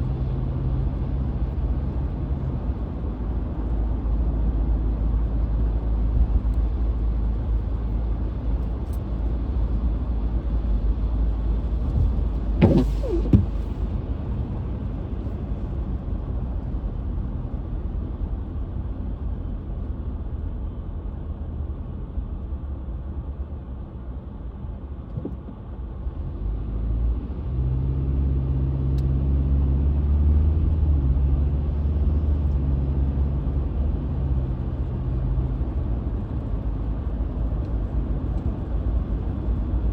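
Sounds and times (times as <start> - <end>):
car cabin road and engine noise: 0.0 - 39.9
brief squeal: 12.6 - 13.8.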